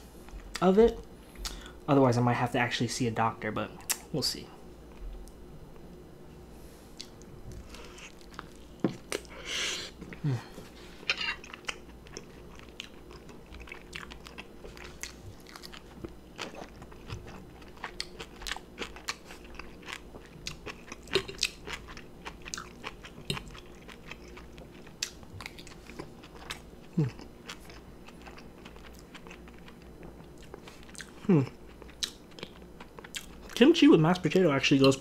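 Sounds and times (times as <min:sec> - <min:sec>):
wet chewing: 0:07.0 - 0:09.4, 0:11.4 - 0:33.6.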